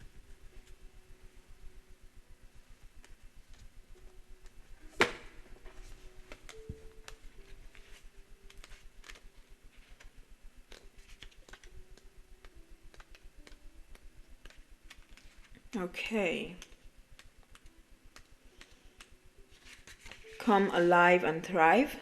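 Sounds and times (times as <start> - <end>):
faint steady hum: 0.0 - 22.0
cards handled on a table: 4.9 - 10.1, 10.7 - 15.6, 16.6 - 20.4.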